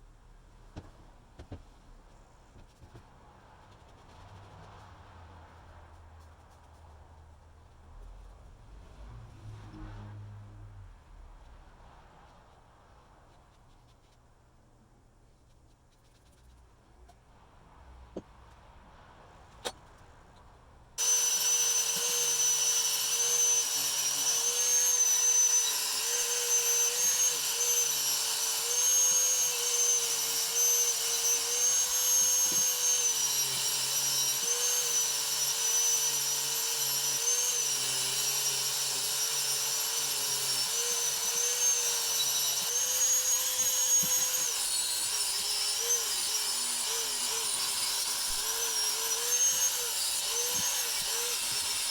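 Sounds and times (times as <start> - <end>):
small electric power tool running: 21.0 - 51.9.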